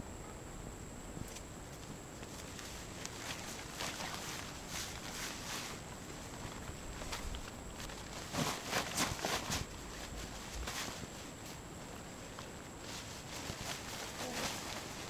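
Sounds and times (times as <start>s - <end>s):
rustling and crunching: 2.2s - 15.0s.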